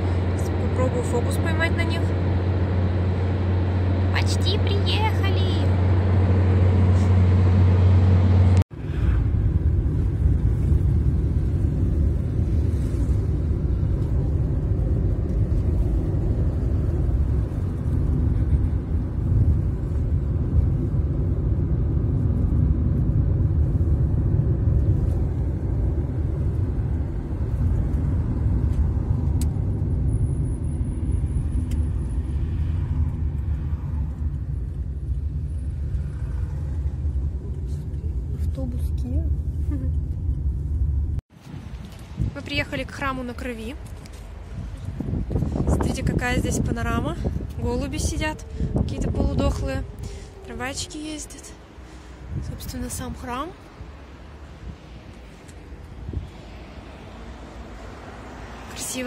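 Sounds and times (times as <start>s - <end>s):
car engine rumble: 0.0s - 59.0s.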